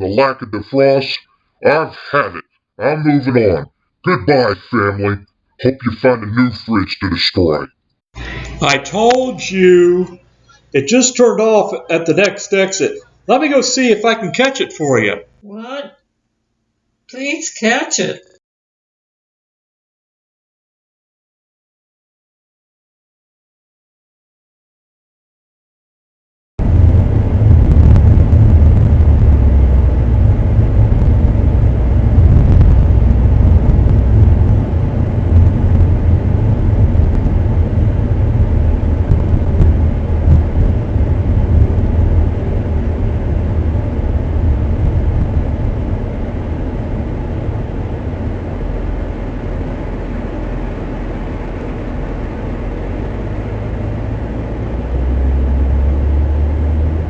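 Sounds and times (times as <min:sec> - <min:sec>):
vehicle engine and road noise: 0:26.6 - 0:57.0.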